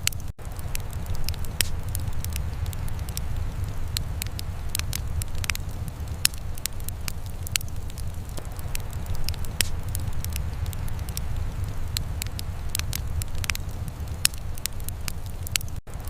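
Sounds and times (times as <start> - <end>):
low fire rumble: 0.0 - 16.0
wood fire crackling: 0.0 - 16.0.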